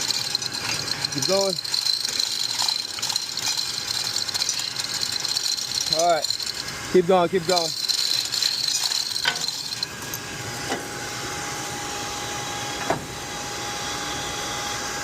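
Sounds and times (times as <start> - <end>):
thin steady tone: 0.0 - 10.2.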